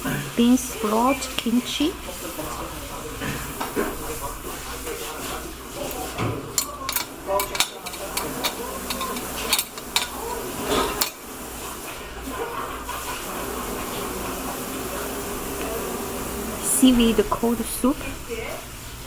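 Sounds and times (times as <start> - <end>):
murmur of voices: 0.0 - 19.0
dishes and cutlery clinking: 2.4 - 13.2.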